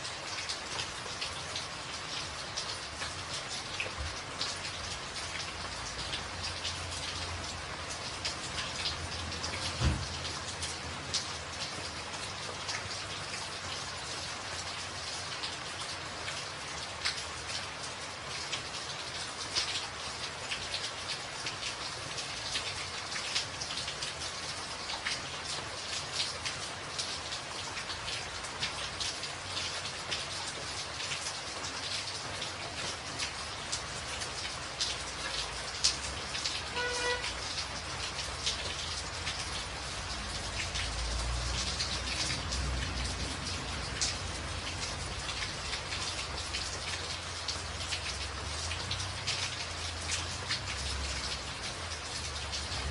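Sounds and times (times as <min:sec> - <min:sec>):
rain on a tin roof: 0:00.0 - 0:52.9.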